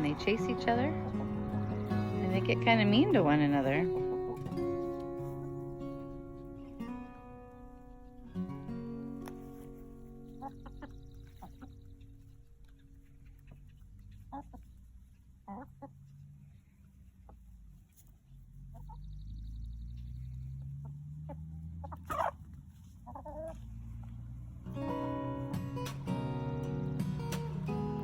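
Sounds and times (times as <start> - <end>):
chickens clucking and squawking: 0.0 - 6.8, 9.3 - 19.5, 20.7 - 24.1
guitar music: 0.0 - 13.3, 24.5 - 28.0.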